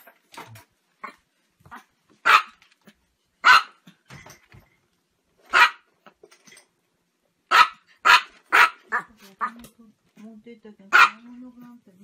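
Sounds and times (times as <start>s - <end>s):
small dog yapping: 1.0s - 2.6s, 3.4s - 3.8s, 5.5s - 5.9s, 7.5s - 9.1s.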